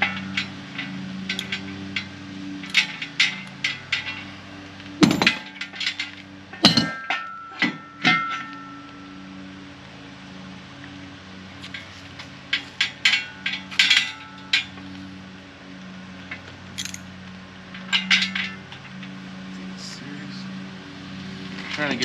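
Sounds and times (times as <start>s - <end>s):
light metal clicks: 0.2s - 4.3s, 16.3s - 17.1s
metallic knocks with ring: 5.0s - 5.6s, 6.6s - 8.8s.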